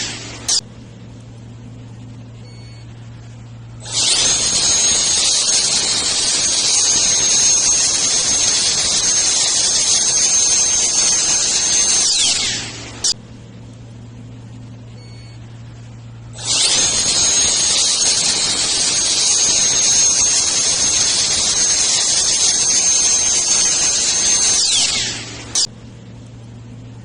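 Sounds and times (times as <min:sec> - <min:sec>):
jet blower whine and air rush: 0:00.0 - 0:00.6, 0:03.8 - 0:13.2, 0:16.3 - 0:25.7
low hum: 0:00.0 - 0:27.0.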